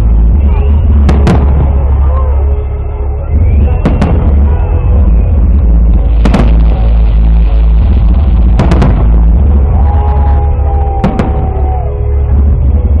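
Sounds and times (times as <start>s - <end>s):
loud low rumble: 0.0s - 13.0s
fireworks shells bursting: 6.1s - 9.3s.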